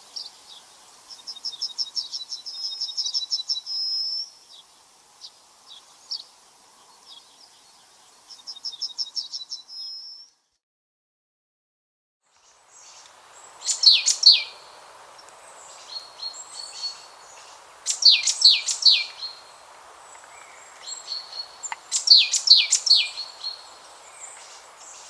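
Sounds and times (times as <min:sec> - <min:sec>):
faint steady hiss: 0:00.0 - 0:10.6, 0:12.2 - 0:25.0
bird chirps: 0:12.4 - 0:25.0
songbird trilling: 0:12.8 - 0:25.0.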